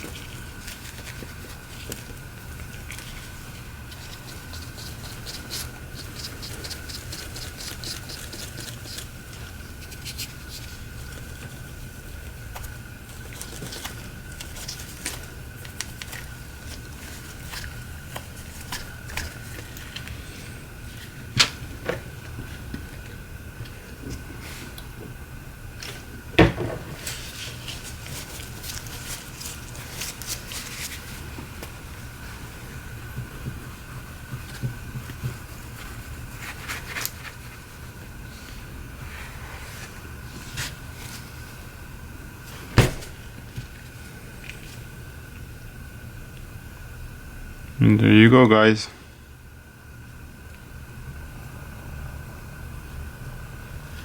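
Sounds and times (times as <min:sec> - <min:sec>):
hands scratching and rubbing phone: 0:00.0 - 0:20.1
steady electrical hum: 0:00.0 - 0:54.0.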